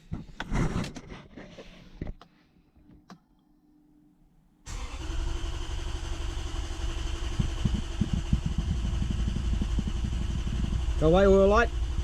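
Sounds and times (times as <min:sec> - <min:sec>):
engine starter cranking: 0:04.7 - 0:11.6.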